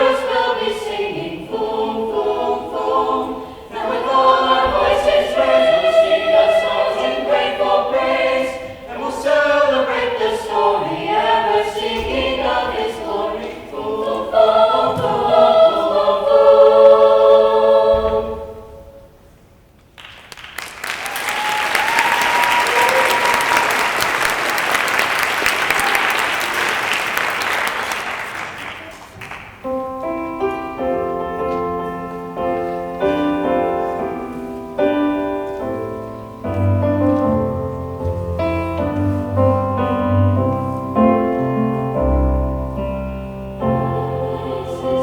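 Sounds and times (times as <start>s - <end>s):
audience applauding: 20.0s - 29.6s
piano playing chords: 29.6s - 45.0s.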